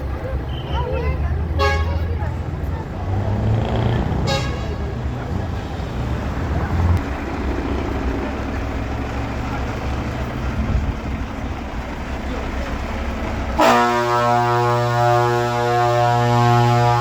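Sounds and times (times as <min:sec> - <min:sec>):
truck engines rumbling: 0:00.0 - 0:17.0
short horn toot: 0:04.2 - 0:04.8, 0:13.6 - 0:17.0.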